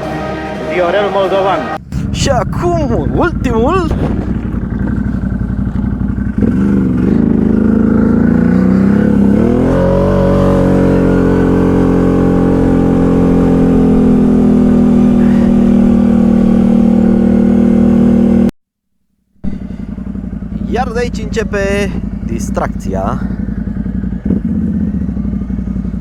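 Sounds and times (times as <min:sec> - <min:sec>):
atv engine revving: 0:00.0 - 0:18.5, 0:19.4 - 0:26.0.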